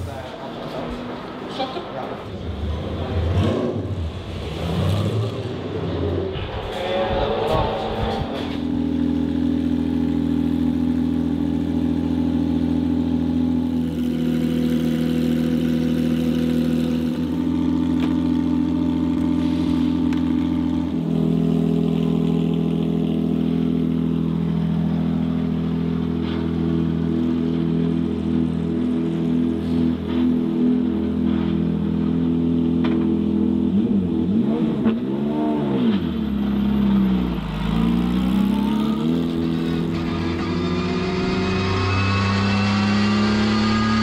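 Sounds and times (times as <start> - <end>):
race car engine idling: 8.1 - 34.2.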